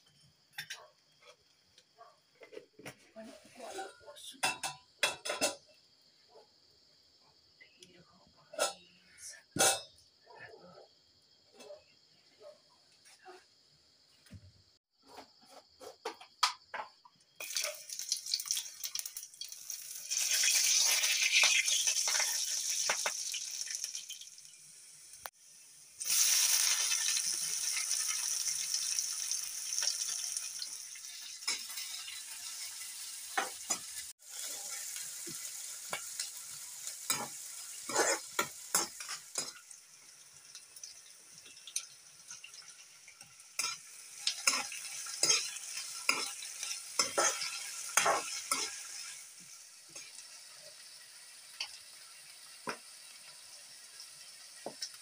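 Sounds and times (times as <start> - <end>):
onions and tomatoes sizzling: 16.7 - 55.0
spatula scraping and tapping pan: 37.1 - 39.6.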